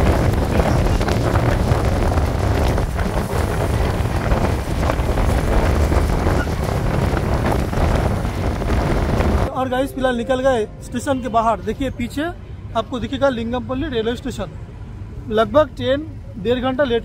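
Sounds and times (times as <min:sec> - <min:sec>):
wind rushing over microphone: 0:00.0 - 0:09.8
train rumbling on rails: 0:00.0 - 0:13.7.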